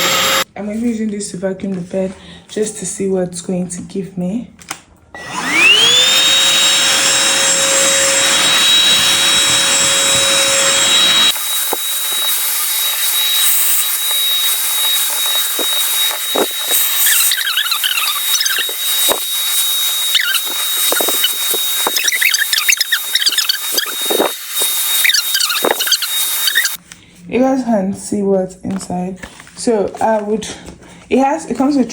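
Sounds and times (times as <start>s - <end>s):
handheld vacuum whine: 0.0s - 0.5s, 5.2s - 26.8s
scratchy squeaks: 8.4s - 26.8s.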